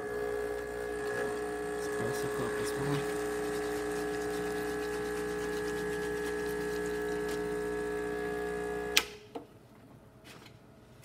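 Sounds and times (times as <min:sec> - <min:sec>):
espresso machine pump buzzing: 0:00.0 - 0:09.0
water flowing: 0:00.5 - 0:08.6
switch clicking off: 0:08.9 - 0:09.2.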